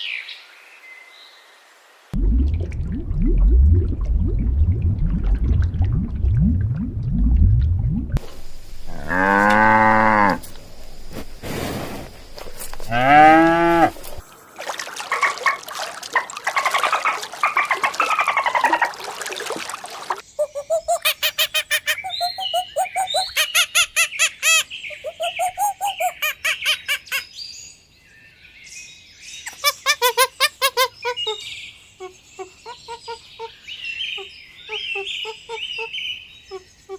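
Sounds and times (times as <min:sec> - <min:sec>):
birds chirping: 0:08.2 - 0:14.2, 0:30.8 - 0:36.9.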